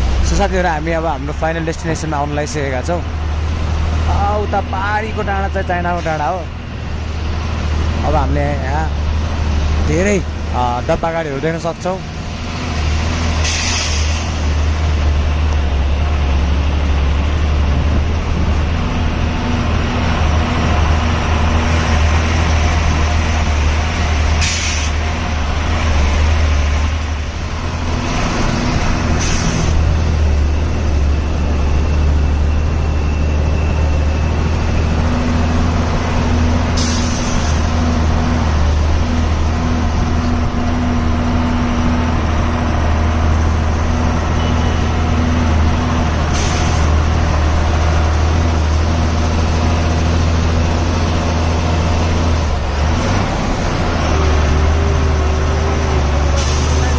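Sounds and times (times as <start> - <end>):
truck diesel engine running: 0.0 - 56.9
air brake hisses: 13.4 - 14.4, 24.4 - 25.0, 29.2 - 29.8, 36.8 - 37.6.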